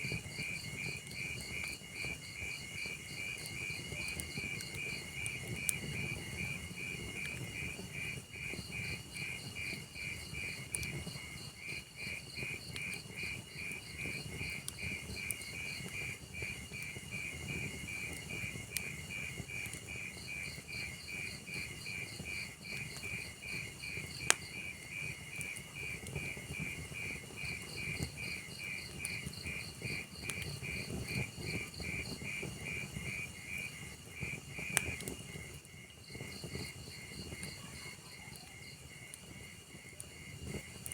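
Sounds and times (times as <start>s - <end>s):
cricket chirps: 0.0s - 40.9s
log fire crackling: 0.0s - 40.9s
burning wood pops: 27.8s - 37.0s.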